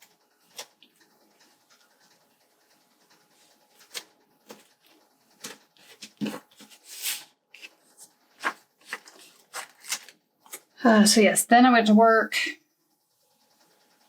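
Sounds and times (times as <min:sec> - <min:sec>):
papery rasp: 0:03.2 - 0:10.6
paper being handled: 0:03.7 - 0:10.6.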